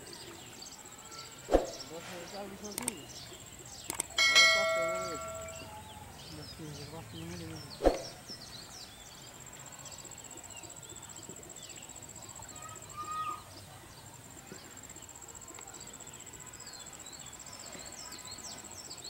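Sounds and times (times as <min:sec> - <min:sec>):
bird chirps: 0:00.6 - 0:14.1
pulsing insect trill: 0:03.9 - 0:06.0
loud bird call: 0:03.9 - 0:06.4.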